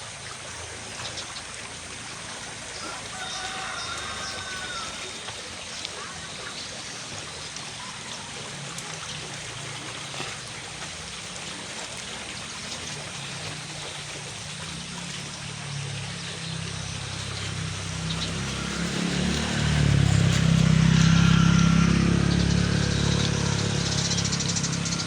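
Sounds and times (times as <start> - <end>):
low engine hum: 0.0 - 25.0
running water: 0.0 - 25.0
rain falling: 2.0 - 6.1, 14.6 - 25.0.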